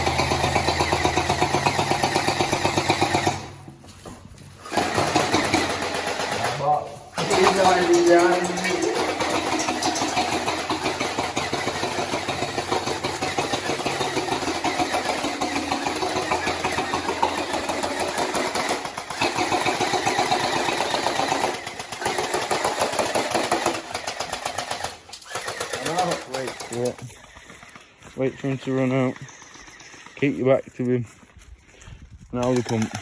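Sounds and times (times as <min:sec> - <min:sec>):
gel blasters firing full auto: 0:04.7 - 0:26.9.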